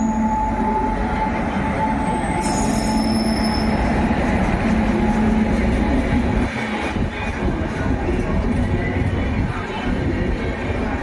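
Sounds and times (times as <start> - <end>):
high wheel squeal: 0.0 - 4.0
train wheels rumbling on rail: 0.0 - 11.0.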